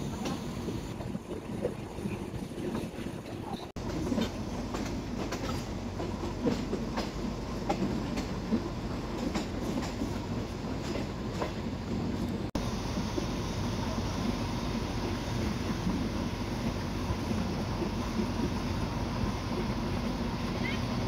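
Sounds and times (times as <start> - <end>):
train wheels clacking over rail joints: 2.6 - 12.3.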